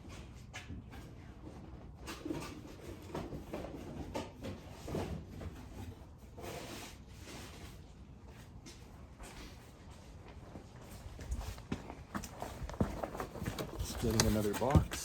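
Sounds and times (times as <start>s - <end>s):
wooden frames knocking and scraping: 12.6s - 15.0s.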